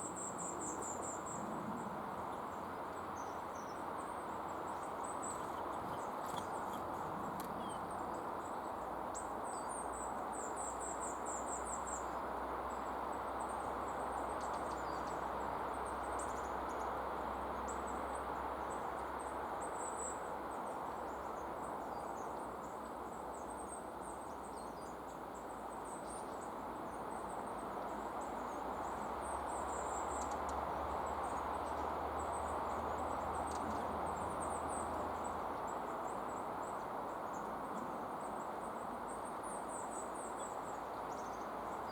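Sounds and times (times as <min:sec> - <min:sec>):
high thin bird chirps: 0:05.2 - 0:07.8.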